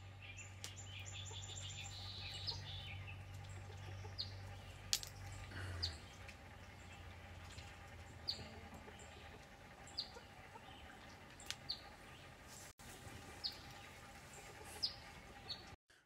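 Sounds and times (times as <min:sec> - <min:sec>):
bird chirping: 0:00.0 - 0:15.8
low steady background noise: 0:00.0 - 0:16.0.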